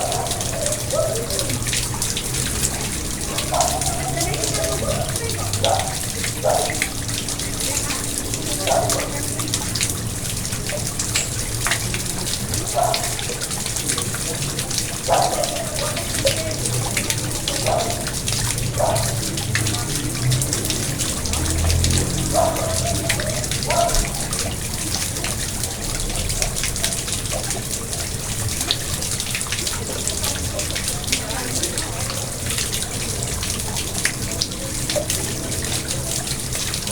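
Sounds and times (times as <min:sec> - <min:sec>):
low gurgling blips: 0:00.0 - 0:31.5
pond water running and splashing: 0:00.0 - 0:36.9.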